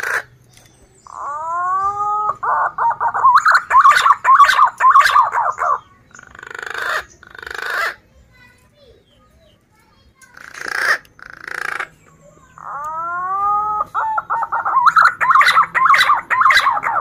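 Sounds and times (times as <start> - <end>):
pigeon whistling song: 0.0 - 7.9, 11.6 - 17.0
raspy bird bursts: 10.3 - 12.0.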